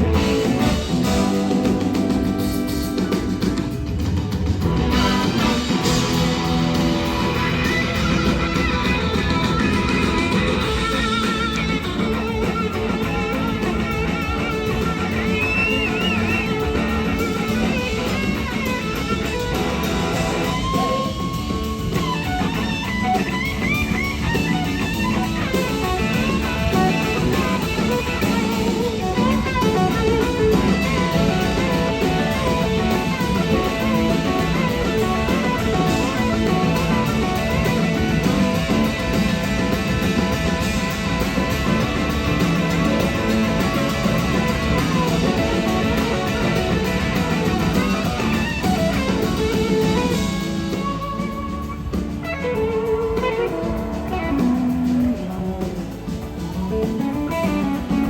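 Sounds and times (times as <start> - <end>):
bass guitar: 0.0 - 58.0
drum kit: 0.0 - 58.0
electric slide guitar solo: 4.9 - 55.9.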